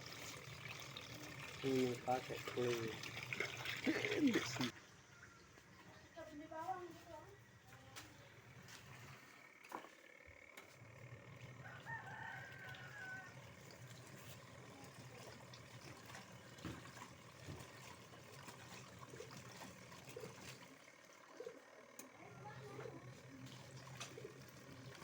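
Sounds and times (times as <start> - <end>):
faint rooster crowing: 4.8 - 5.9, 11.5 - 13.6.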